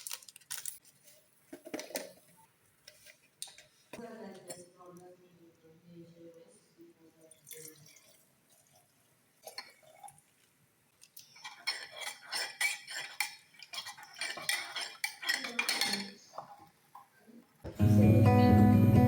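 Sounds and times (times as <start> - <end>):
dishes and utensils clinking: 11.4 - 17.1.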